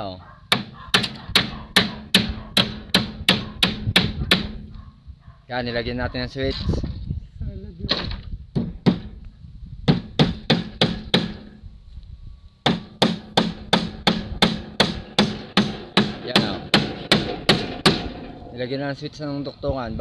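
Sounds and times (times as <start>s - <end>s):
hammer nailing into wood: 0.5s - 4.7s, 7.9s - 9.2s, 9.9s - 11.5s, 12.6s - 18.4s.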